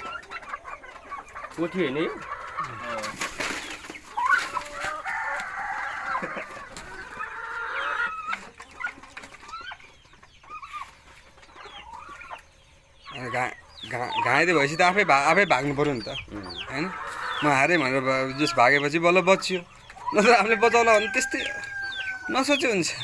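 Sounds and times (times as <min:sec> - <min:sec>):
chickens clucking and squawking: 0:00.0 - 0:23.0.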